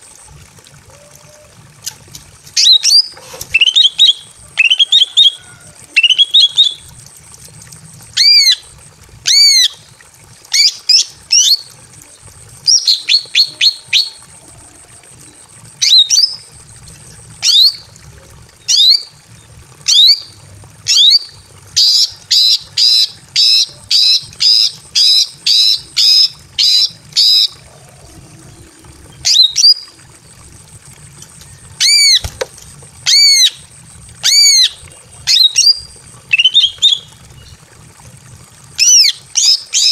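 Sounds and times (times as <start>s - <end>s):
bird calling: 0.8s - 2.0s.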